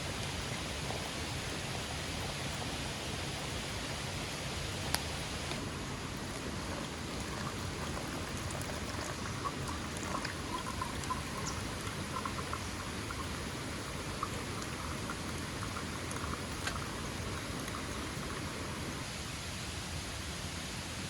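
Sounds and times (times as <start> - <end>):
rain patter: 0.0 - 19.1
water drops ticking: 4.9 - 19.0.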